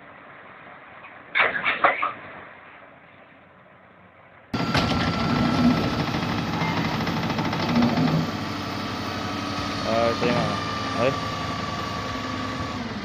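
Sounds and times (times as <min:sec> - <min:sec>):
heavy engine running: 0:04.5 - 0:13.0.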